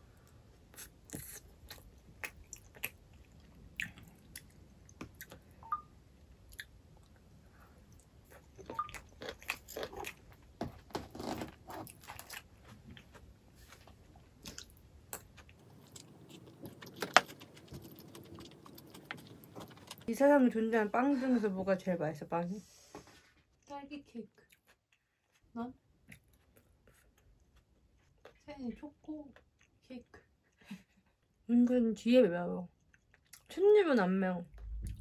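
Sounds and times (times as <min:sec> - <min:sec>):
chewing with wet clicks and crunches: 0:00.2 - 0:10.6, 0:11.8 - 0:20.2, 0:24.3 - 0:25.4, 0:26.0 - 0:28.4, 0:29.3 - 0:31.8, 0:32.7 - 0:35.0.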